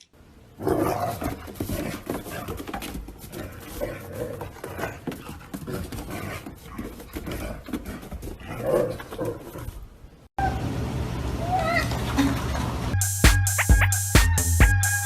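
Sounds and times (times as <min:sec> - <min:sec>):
music: 0:12.9 - 0:15.0.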